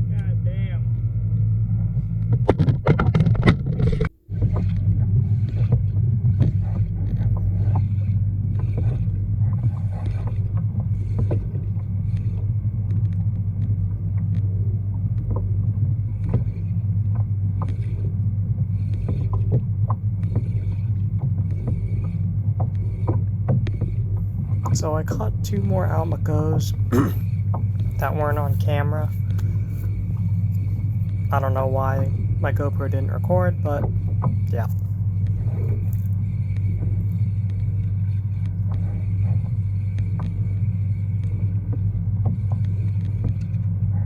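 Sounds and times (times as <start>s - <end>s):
steady low hum: 0.0s - 44.0s
small knocks and clicks: 1.4s - 24.9s
water slapping against hull: 1.8s - 44.0s.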